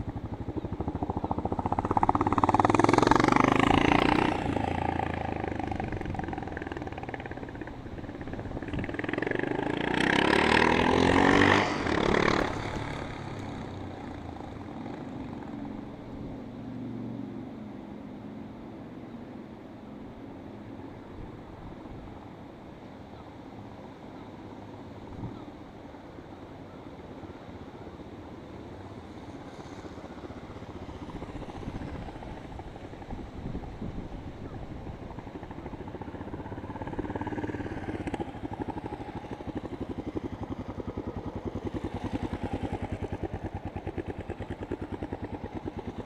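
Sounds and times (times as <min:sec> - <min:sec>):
motorcycle engine accelerating: 0:00.0 - 0:16.4, 0:29.1 - 0:46.0.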